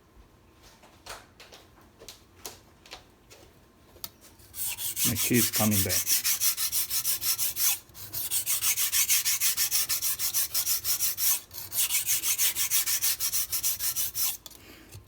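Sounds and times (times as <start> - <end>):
knife scraping on whetstone: 4.2 - 14.6.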